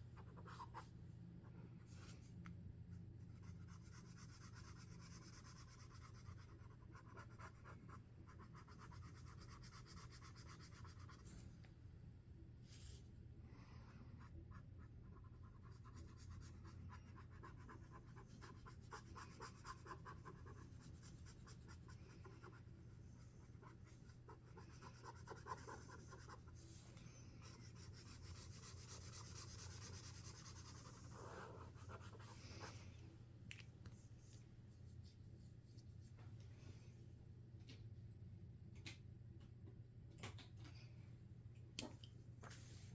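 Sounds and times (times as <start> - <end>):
marker scratching on paper: 23.8 - 26.8, 27.4 - 32.7.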